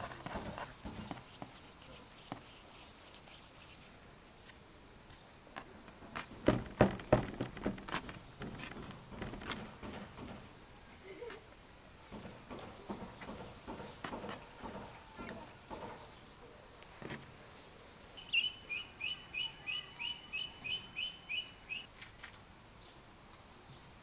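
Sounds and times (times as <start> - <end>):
light knocks and clatter: 0.0 - 2.5, 5.6 - 17.3
steady high hiss: 0.0 - 24.0
songbird chirping: 5.1 - 22.0.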